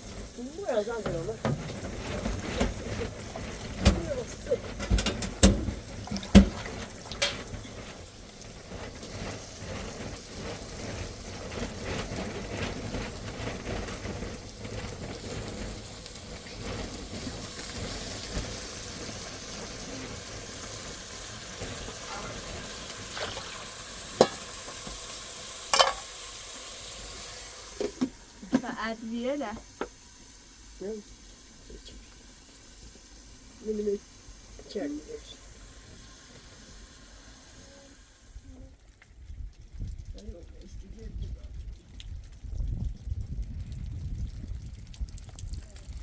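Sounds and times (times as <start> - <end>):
food sizzling in a pan: 0.0 - 39.3
utensil knocking against pan: 3.7 - 7.5, 24.2 - 25.0.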